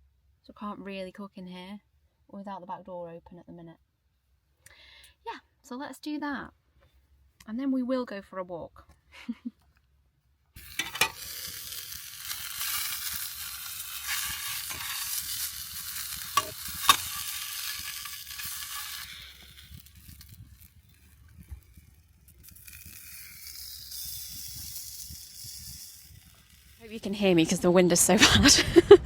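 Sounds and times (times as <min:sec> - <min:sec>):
food sizzling in a pan: 0:10.6 - 0:28.1.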